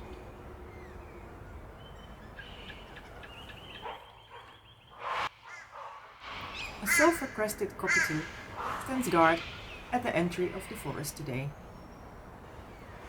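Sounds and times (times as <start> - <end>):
small birds chirping and trilling: 0.0 - 5.6, 6.3 - 13.0
cockatoo screeching: 6.5 - 9.7.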